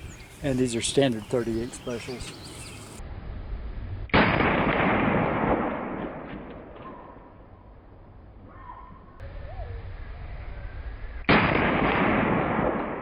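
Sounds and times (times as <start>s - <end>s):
revolver gunshot: 4.1s - 6.8s, 11.3s - 13.0s.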